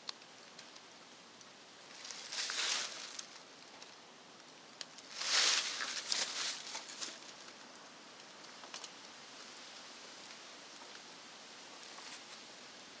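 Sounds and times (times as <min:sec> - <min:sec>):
small clicks and rustles: 0:00.0 - 0:12.6
faint background hiss: 0:00.0 - 0:13.0
rustling scrape: 0:02.0 - 0:03.2, 0:05.1 - 0:07.2.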